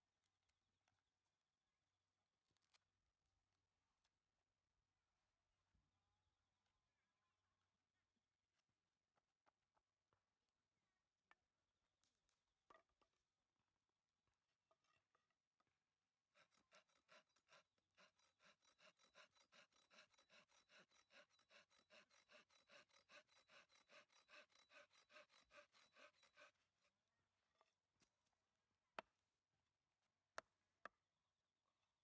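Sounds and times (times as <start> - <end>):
hand saw cutting wood: 16.3 - 27.0.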